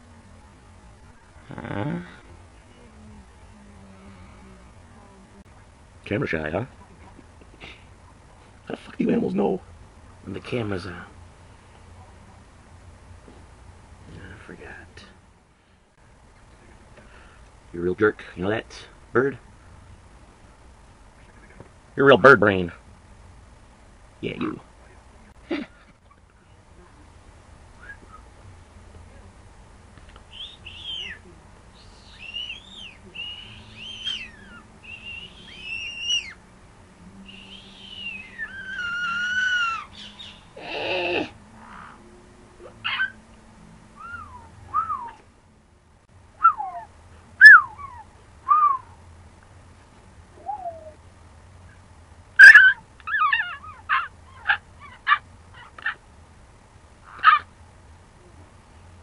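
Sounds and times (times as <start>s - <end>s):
bird squawk: 30.3s - 31.2s, 31.8s - 36.4s, 37.3s - 42.0s, 57.0s - 57.5s
pet bird whistling calls: 30.3s - 36.4s, 37.2s - 40.8s, 44.0s - 45.2s, 46.4s - 48.9s, 50.4s - 51.0s.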